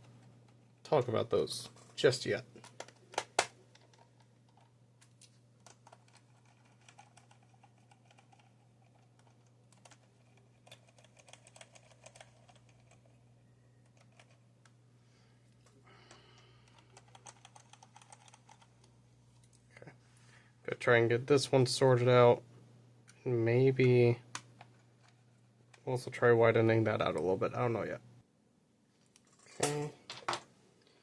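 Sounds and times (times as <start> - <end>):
plastic parts clicking: 2.6 - 12.9.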